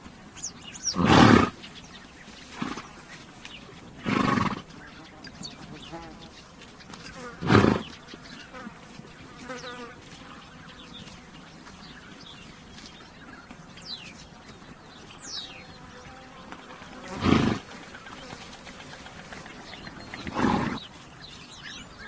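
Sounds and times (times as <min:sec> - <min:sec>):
bird chirps: 0:00.3 - 0:16.3, 0:16.9 - 0:22.0
horse snorting: 0:00.8 - 0:01.7, 0:02.5 - 0:03.1, 0:03.9 - 0:04.8, 0:07.2 - 0:08.0, 0:17.0 - 0:21.0
flies buzzing: 0:02.4 - 0:12.8, 0:13.5 - 0:22.0.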